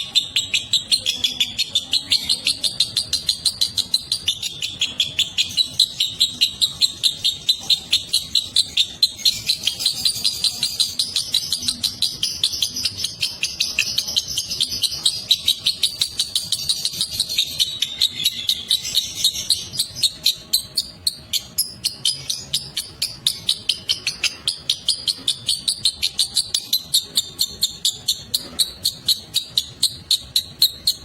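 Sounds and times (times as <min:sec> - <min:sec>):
bird chattering high chirps: 0:00.0 - 0:31.0
high bird trill: 0:00.0 - 0:31.0.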